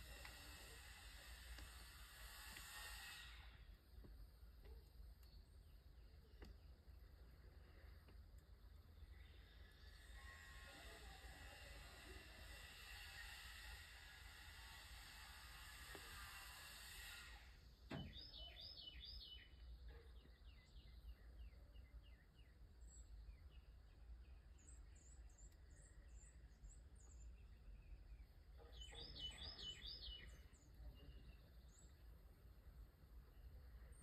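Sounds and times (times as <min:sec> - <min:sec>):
bird chirps: 0:18.0 - 0:32.2.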